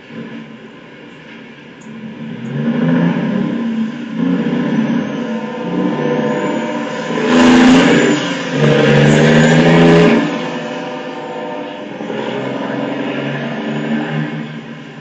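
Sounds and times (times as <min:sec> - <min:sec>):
locomotive air horn blasts: 0:04.2 - 0:15.0.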